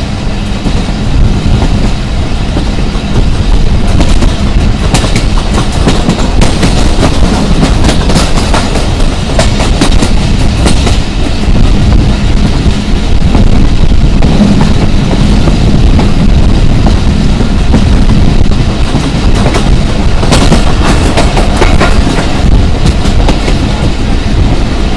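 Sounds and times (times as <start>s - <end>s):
rumble of train wheels on track: 0.0s - 24.9s.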